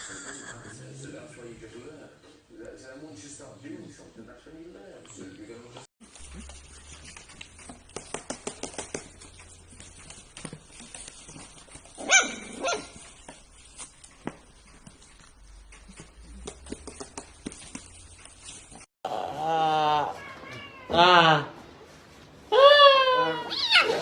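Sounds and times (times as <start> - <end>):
dog barking: 12.0 - 13.0.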